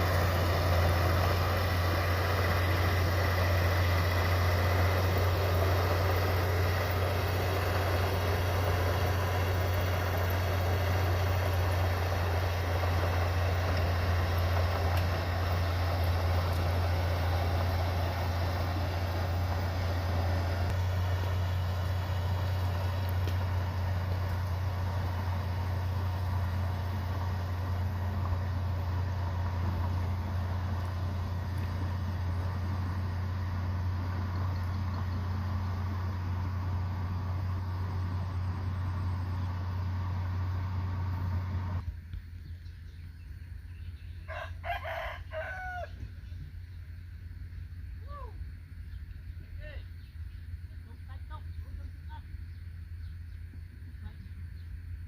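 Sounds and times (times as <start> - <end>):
heavy diesel machinery droning: 0.0 - 42.1.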